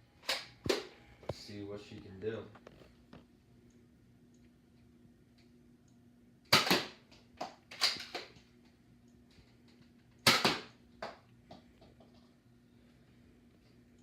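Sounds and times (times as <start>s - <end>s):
toy dart blaster firing: 6.5s - 8.3s, 10.2s - 10.8s.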